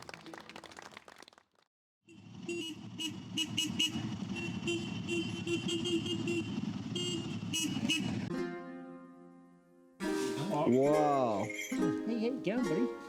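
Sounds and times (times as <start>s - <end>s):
vehicle engine running: 2.1s - 8.3s.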